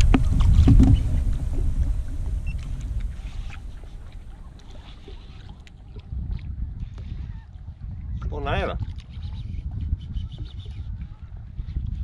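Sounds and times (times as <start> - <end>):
low rumbling noise: 0.0 - 6.8.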